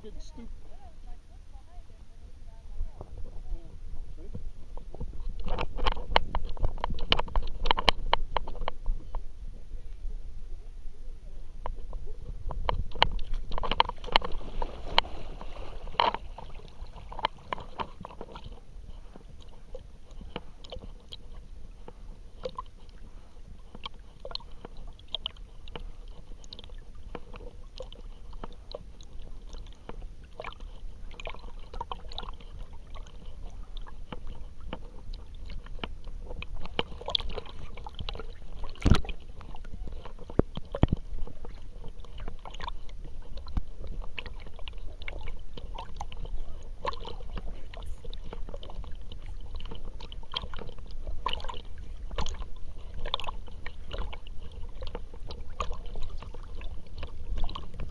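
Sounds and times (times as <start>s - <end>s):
steady low rumble: 0.0s - 57.9s
water sloshing and gurgling: 0.0s - 57.9s
small splashy clicks: 23.7s - 57.9s.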